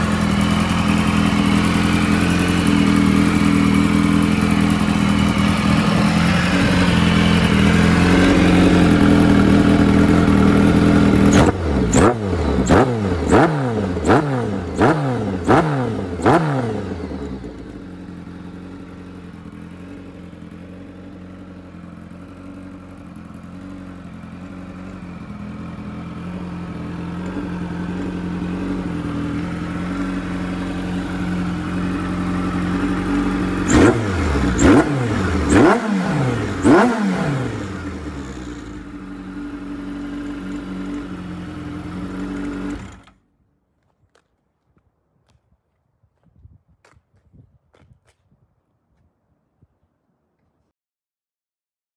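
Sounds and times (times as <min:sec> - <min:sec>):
motorcycle engine running: 0:00.0 - 0:43.2
engine revving blips: 0:06.1 - 0:17.7, 0:33.6 - 0:38.9.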